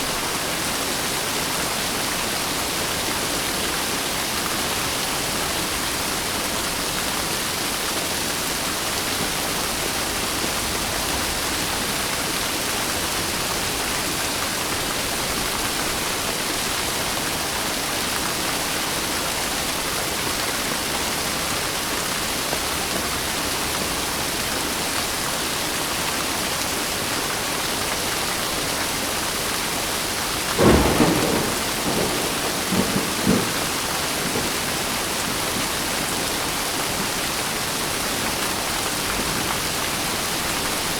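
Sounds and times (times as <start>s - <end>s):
steady rain hissing: 0.0s - 40.9s
thunderclap and rumbling: 30.4s - 35.9s.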